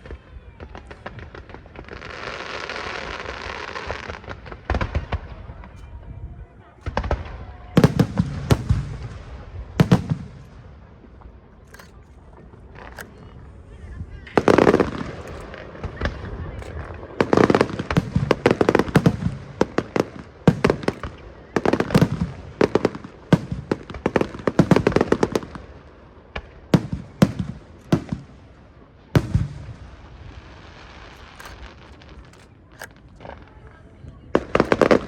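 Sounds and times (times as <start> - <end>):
fireworks bursting: 6.8 - 25.8, 26.4 - 33.6, 34.4 - 35.0.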